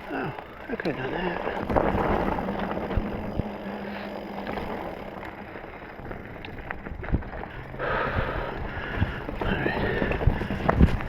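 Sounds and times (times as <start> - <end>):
bike knocking over rocks: 0.0 - 11.0
bike tyres on rocky trail: 0.0 - 11.0
wind on microphone: 1.6 - 5.2, 6.0 - 11.0.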